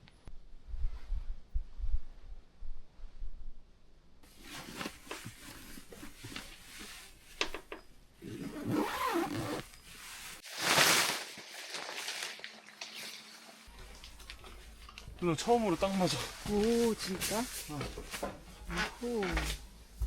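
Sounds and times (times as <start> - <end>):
fabric rustling: 4.3 - 7.5, 8.2 - 13.3, 13.9 - 20.0.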